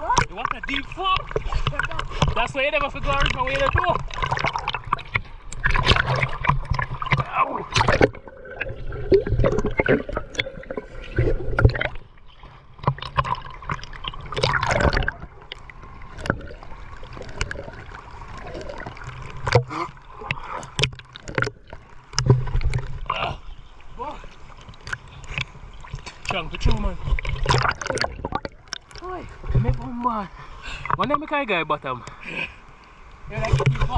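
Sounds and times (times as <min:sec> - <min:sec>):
water gurgling: 0:00.0 - 0:31.7, 0:33.2 - 0:33.9
water splashing and sloshing: 0:00.0 - 0:33.9.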